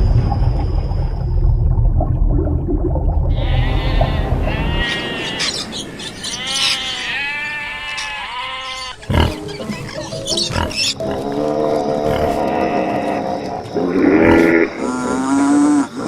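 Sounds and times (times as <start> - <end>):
farm animal calls: 3.3 - 15.9
background music: 9.0 - 14.4.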